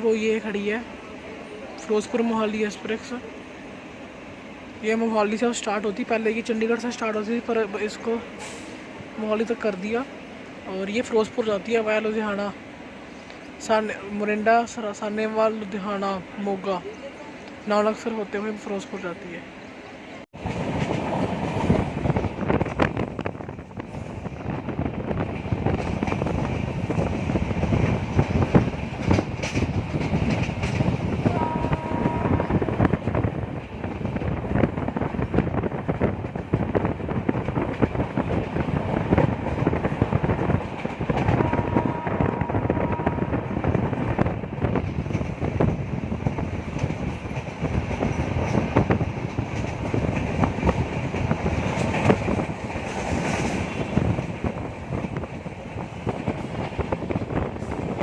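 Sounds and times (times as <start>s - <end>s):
train wheels clattering on rails: 20.4s - 58.0s.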